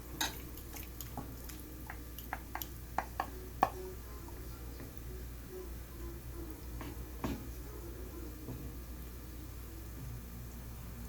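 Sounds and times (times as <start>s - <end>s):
utensil knocking against dish: 1.9s - 3.8s.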